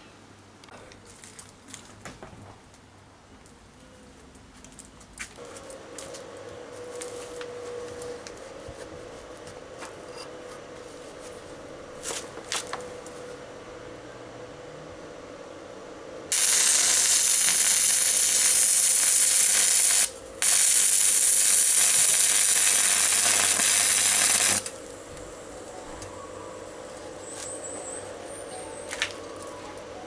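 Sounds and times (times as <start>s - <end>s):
loud hissing crackle: 16.3s - 27.4s.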